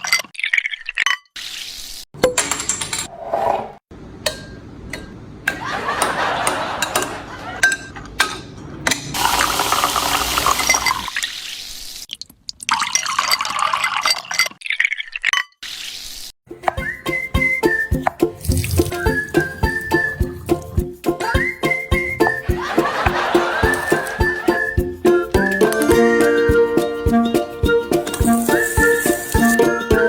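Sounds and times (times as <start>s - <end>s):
dishes clinking: 6.4s - 9.2s
water pouring into container: 9.2s - 14.9s, 18.3s - 20.8s.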